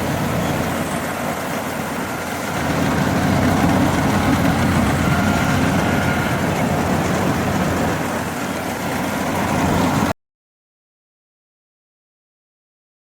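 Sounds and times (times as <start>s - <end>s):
combine harvester engine drone: 0.0s - 10.2s.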